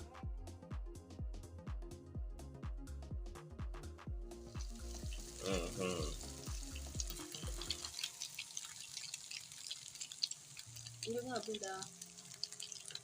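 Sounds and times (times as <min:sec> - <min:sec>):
background music with steady beat: 0:00.0 - 0:09.3
bread sizzling in oil: 0:04.4 - 0:13.0.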